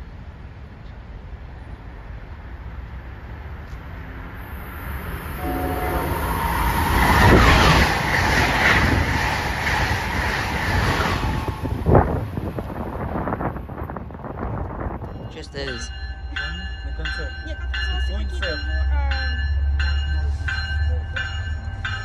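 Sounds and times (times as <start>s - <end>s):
passenger train rushing past: 0.0s - 22.0s
train horn blast: 5.3s - 7.8s.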